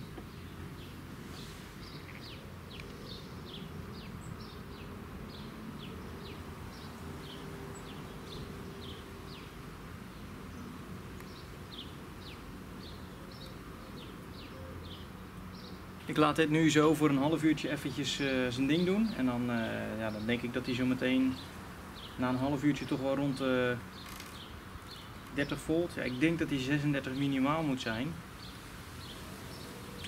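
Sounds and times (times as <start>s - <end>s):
small bird chirping: 0.0s - 15.8s, 22.8s - 26.2s.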